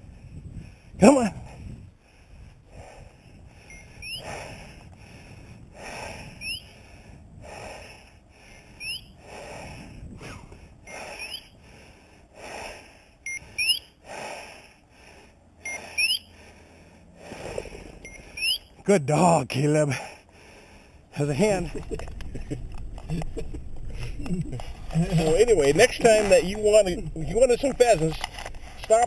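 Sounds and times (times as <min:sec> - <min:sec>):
heavy slow breathing: 0:00.0 - 0:18.8, 0:19.8 - 0:29.0
rising whistle-like chirps: 0:03.7 - 0:04.2, 0:06.4 - 0:06.7, 0:08.8 - 0:09.2, 0:10.9 - 0:11.6, 0:13.3 - 0:14.0, 0:15.6 - 0:16.3, 0:18.0 - 0:18.7.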